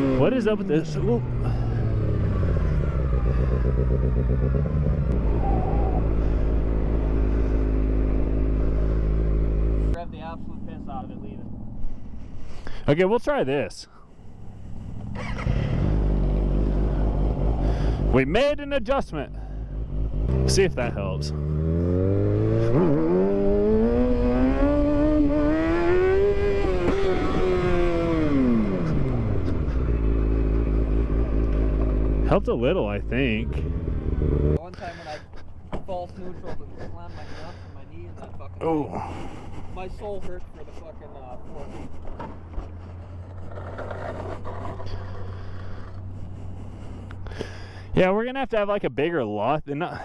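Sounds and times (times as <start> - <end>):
motorcycle engine accelerating: 0.0 - 12.2, 14.3 - 18.3, 19.3 - 34.7, 41.4 - 47.4
low wind rumble: 0.0 - 12.8
motorcycle engine idling: 0.8 - 12.4, 19.3 - 20.2.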